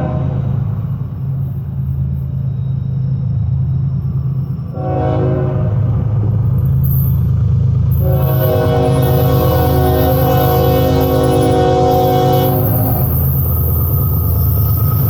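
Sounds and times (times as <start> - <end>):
train horn held: 0.0 - 0.8, 4.8 - 5.9, 7.9 - 13.4
diesel locomotive engine rumble: 0.0 - 15.0.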